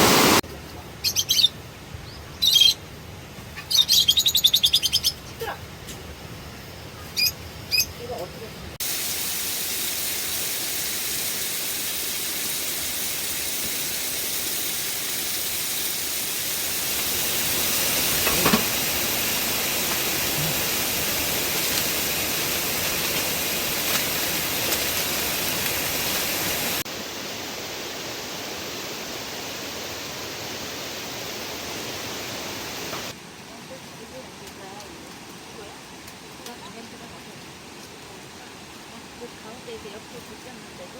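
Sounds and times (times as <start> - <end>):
stream water rushing: 0.0 - 0.4, 13.4 - 33.2.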